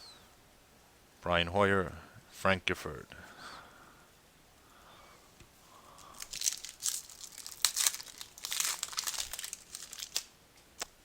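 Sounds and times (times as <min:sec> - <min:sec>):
foil wrapper crinkling and tearing: 0:06.0 - 0:10.9.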